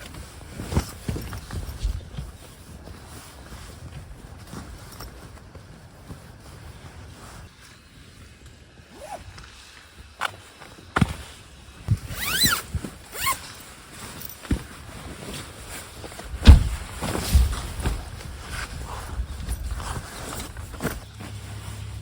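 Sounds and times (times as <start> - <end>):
knocks and thumps of gear: 0.0 - 2.6, 16.0 - 21.1.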